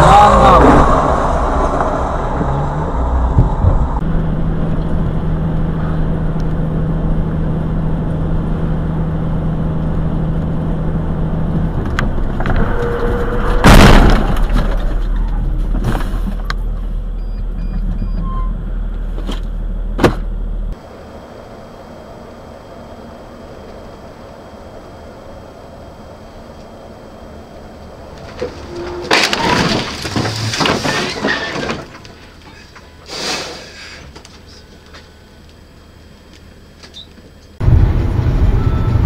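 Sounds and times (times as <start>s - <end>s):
low hum: 0.0s - 30.6s, 34.2s - 39.0s
vehicle engine and road noise: 0.0s - 39.0s.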